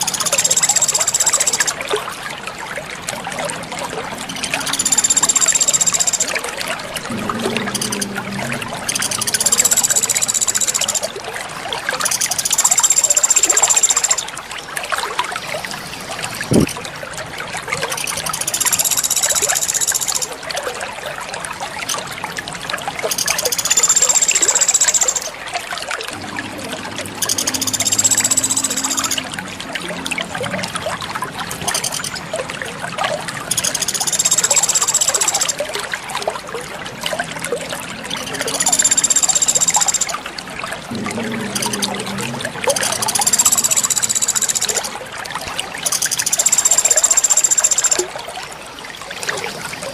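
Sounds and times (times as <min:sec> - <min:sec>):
water trickling: 0:00.0 - 0:49.9.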